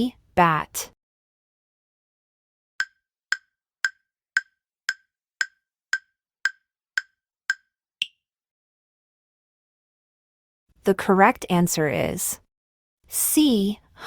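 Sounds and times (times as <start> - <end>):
wood-block timer ticks: 2.8 - 8.2.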